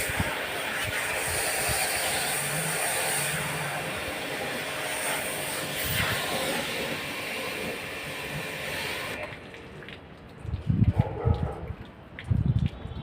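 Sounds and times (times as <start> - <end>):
high-pressure water jet hissing: 0.0 - 9.4.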